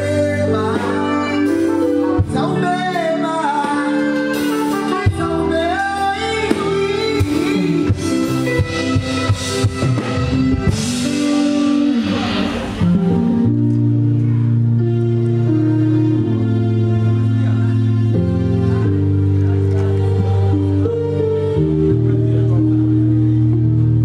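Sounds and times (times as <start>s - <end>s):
person singing: 0.0s - 14.5s
band playing: 0.0s - 24.0s.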